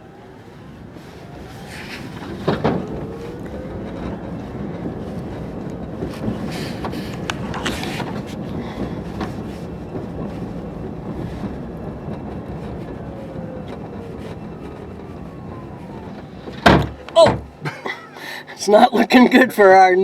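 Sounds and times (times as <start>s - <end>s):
road and tyre rumble in cabin: 0.0s - 20.0s
cooler knocking in truck bed: 16.6s - 17.7s.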